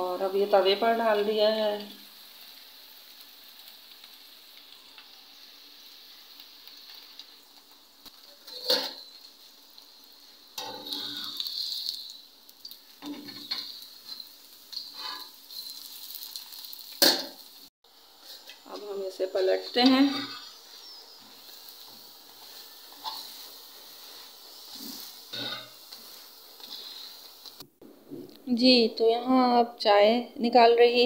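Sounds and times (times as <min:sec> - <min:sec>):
flatbread sizzling on griddle: 0:00.0 - 0:27.6
metal tongs clinking on griddle: 0:08.4 - 0:09.3, 0:10.6 - 0:12.2, 0:13.0 - 0:17.3, 0:21.2 - 0:23.5, 0:24.1 - 0:27.0.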